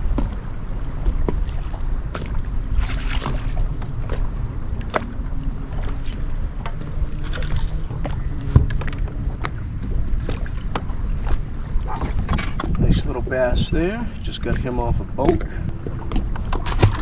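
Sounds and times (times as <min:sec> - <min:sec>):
low rumble of boat: 0:00.0 - 0:17.0
clicks and knocks on boat: 0:05.8 - 0:13.0, 0:14.4 - 0:17.0.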